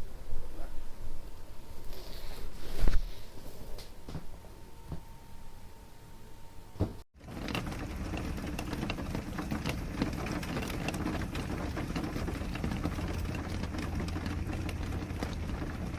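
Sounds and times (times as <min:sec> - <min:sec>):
rustling and crackling: 0:00.1 - 0:05.6.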